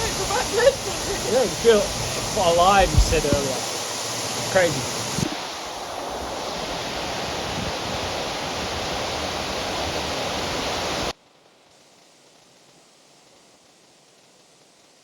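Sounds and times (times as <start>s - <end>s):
waterfall rushing: 0.0s - 11.1s
rain: 0.0s - 11.2s
faint hiss: 0.0s - 15.0s.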